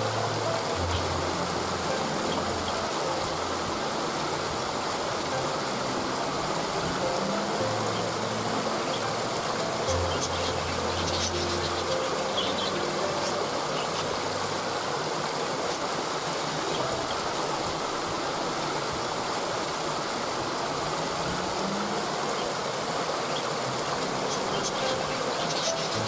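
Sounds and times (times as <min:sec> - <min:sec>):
waterfall rushing: 0:00.0 - 0:26.0
faint bird chirps: 0:24.2 - 0:26.0.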